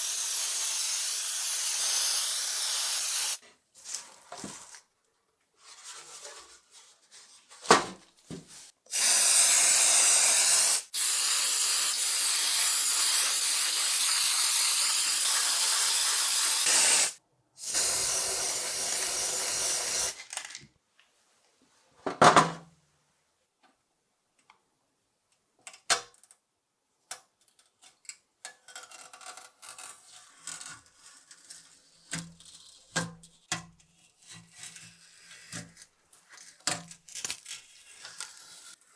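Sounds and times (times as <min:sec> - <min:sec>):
spray hissing: 0:00.0 - 0:03.4, 0:08.9 - 0:20.2.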